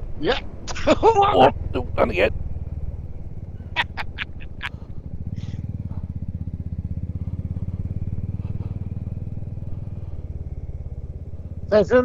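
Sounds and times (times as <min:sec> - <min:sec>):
motorcycle engine running: 0:02.6 - 0:12.0.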